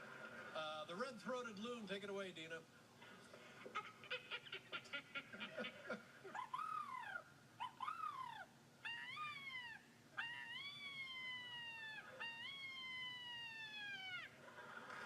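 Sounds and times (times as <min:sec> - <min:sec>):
person imitating bird wails: 0:06.3 - 0:14.3.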